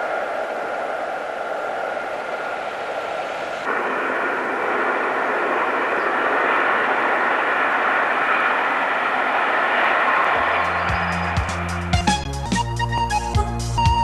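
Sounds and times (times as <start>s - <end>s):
diesel locomotive running: 0.0s - 14.0s.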